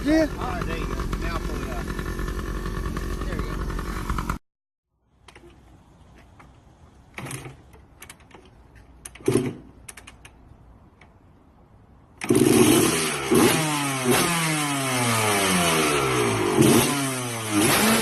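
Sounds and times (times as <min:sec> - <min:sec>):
motorcycle engine revving: 0:00.0 - 0:04.4, 0:12.2 - 0:18.0.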